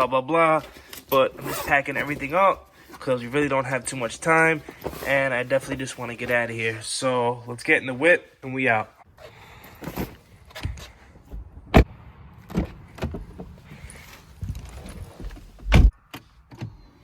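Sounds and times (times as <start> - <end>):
car door shutting: 14.5 - 16.8.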